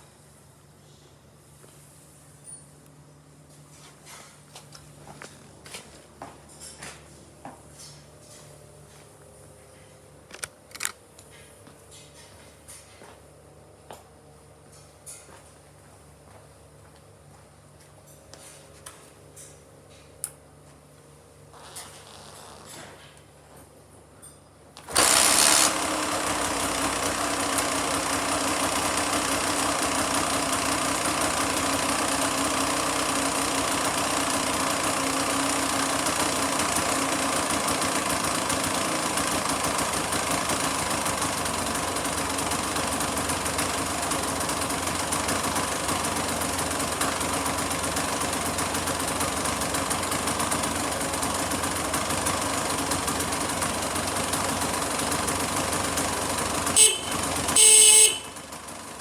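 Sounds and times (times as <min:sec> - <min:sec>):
motorcycle engine idling: 0:25.8 - 0:59.0.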